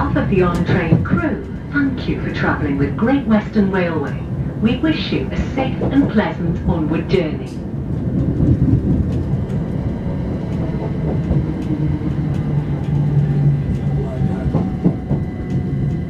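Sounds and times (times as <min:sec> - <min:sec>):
low hum: 0:00.0 - 0:16.0
train cabin rumble: 0:00.0 - 0:16.0
faint clicks from track: 0:04.8 - 0:16.0.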